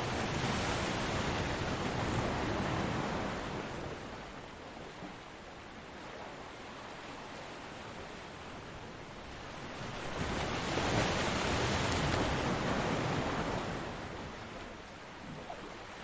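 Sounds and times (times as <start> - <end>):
ocean wave breaking on beach: 0.0 - 4.4, 9.4 - 15.6.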